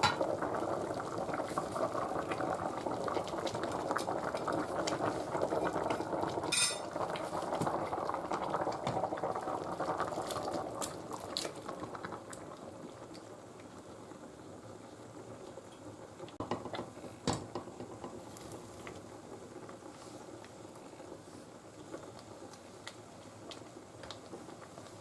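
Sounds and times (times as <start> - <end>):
food sizzling and bubbling in pot: 0.0 - 25.0
utensil clinking against pot: 6.5 - 6.9.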